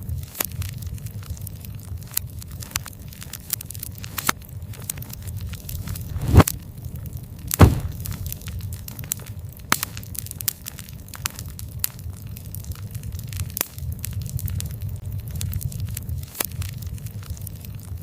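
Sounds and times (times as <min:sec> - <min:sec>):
campfire crackling and popping: 0:00.0 - 0:18.0
low rumble: 0:05.8 - 0:06.5, 0:07.6 - 0:08.4.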